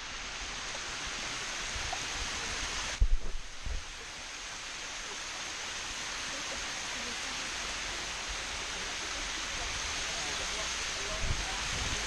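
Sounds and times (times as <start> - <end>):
waterfall rushing: 0.0 - 12.0
low thumps on microphone: 3.0 - 3.9.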